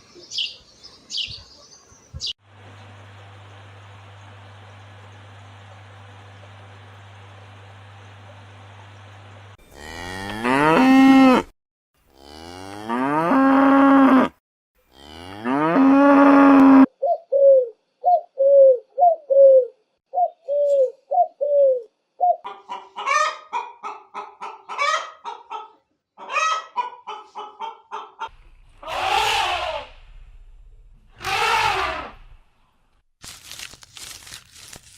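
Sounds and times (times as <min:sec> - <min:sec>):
fowl clucking: 0:22.4 - 0:29.8
rough animal calls: 0:28.2 - 0:30.0, 0:31.1 - 0:32.4.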